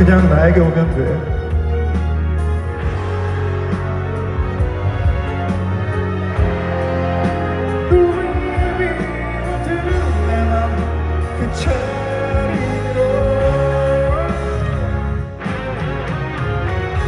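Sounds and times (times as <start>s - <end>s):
live band playing a ballad: 0.0s - 17.0s
steady bass: 0.0s - 17.0s
person singing: 6.8s - 15.4s.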